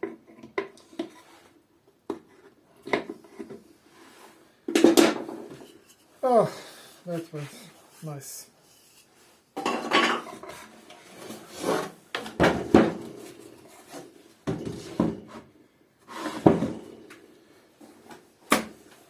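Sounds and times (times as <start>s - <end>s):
wooden knocks and scrapes: 8.7s - 16.9s.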